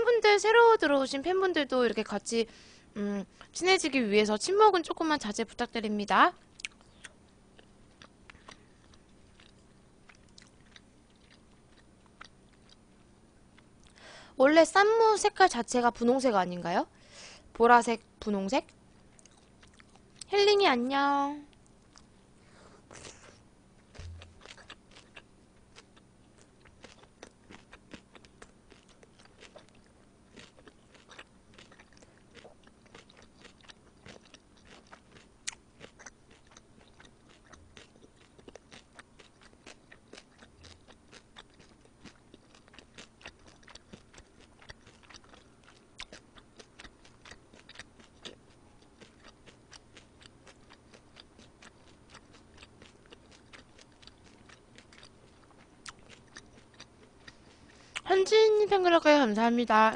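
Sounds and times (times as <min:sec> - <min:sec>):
wet chewing clicks and crunches: 0:06.6 - 0:14.0, 0:19.2 - 0:20.3, 0:23.9 - 0:58.1.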